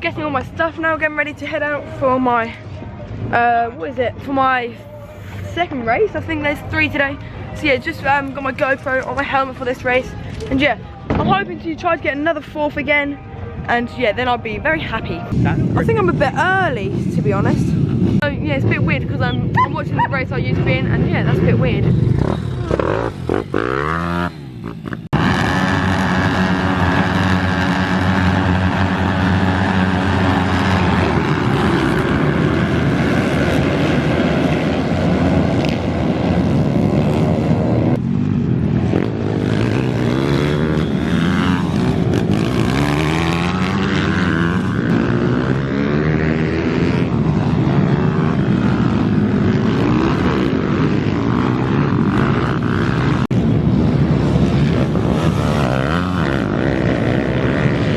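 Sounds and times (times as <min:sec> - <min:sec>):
minibike engines revving: 0:15.4 - 0:57.9.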